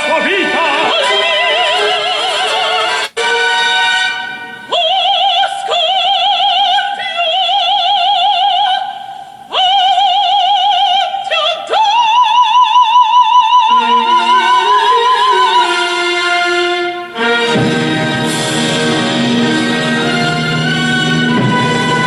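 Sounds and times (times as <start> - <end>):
operatic soprano singing: 0.0 - 3.0, 4.6 - 17.6, 18.8 - 22.0
low orchestral notes: 13.6 - 22.0.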